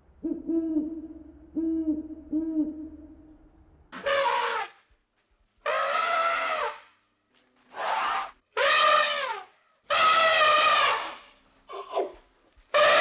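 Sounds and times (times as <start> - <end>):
bird low hooting: 0.1 - 3.5.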